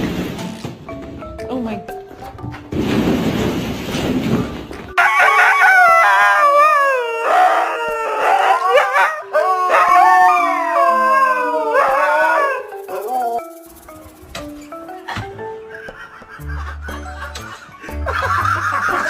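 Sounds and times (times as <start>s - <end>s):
dog howling: 5.4s - 13.4s.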